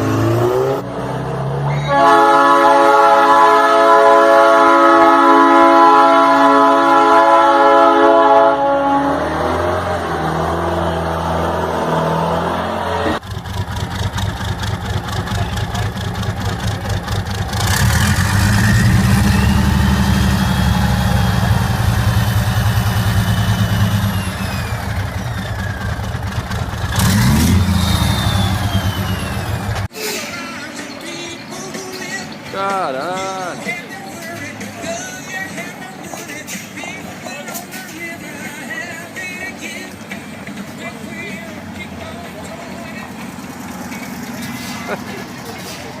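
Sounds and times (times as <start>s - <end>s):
motorcycle engine revving: 0.0s - 2.1s, 8.8s - 29.9s.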